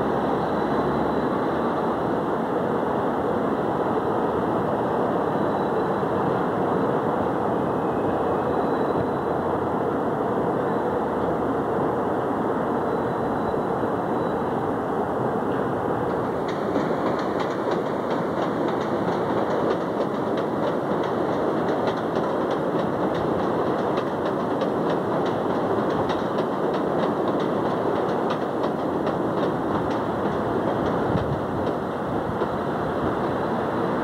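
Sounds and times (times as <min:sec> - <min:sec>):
train wheels on rail: 0:00.0 - 0:34.0
clicks over rail joints: 0:15.5 - 0:33.6.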